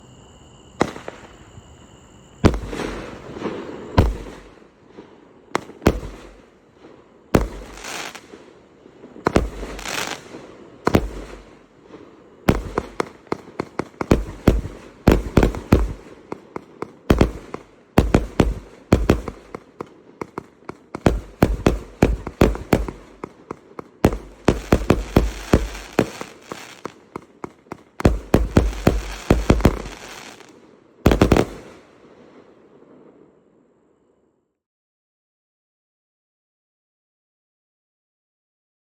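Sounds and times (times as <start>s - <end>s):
firework bangs: 2.4s - 31.9s
firework crackling: 2.5s - 31.9s.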